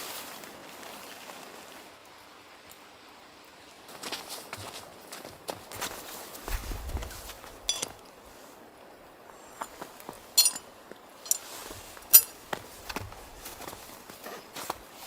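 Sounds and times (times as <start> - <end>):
handling rustle: 5.8 - 8.4, 9.5 - 15.0
small hard objects clinking: 7.6 - 8.0, 10.4 - 10.6, 11.2 - 11.5, 12.1 - 12.4.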